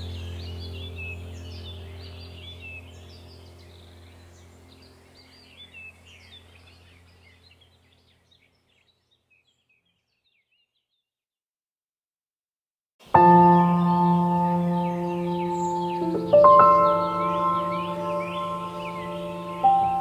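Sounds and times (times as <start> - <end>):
low musical drone: 0.0 - 8.0, 13.1 - 20.0
birds chirping and twittering: 0.0 - 11.1, 13.0 - 20.0.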